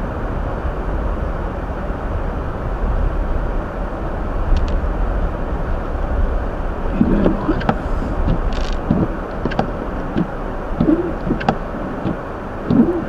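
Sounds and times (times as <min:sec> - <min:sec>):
road and tyre noise on snow: 0:00.0 - 0:13.0
light ticks: 0:04.5 - 0:04.8.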